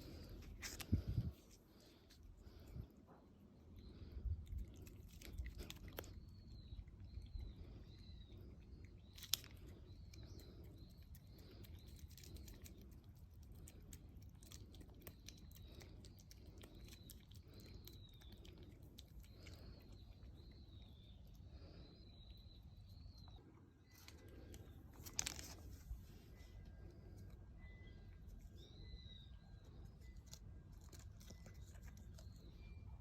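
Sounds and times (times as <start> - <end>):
cat chewing food: 0.0 - 33.0.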